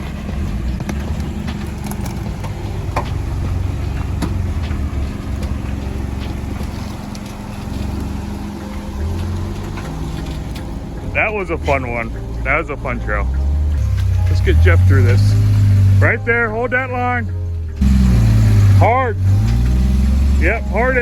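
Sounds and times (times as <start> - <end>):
tyres and chassis knocking on rocks: 0.0 - 12.6
engine running at low revs: 0.0 - 21.0.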